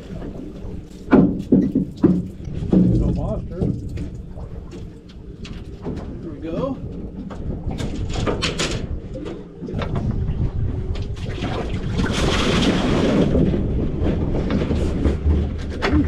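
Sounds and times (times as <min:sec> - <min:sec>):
rushing water or wind: 0:00.0 - 0:15.8
low rumble: 0:00.0 - 0:16.0
sharp knocks and clatter: 0:01.0 - 0:06.2, 0:07.2 - 0:10.1.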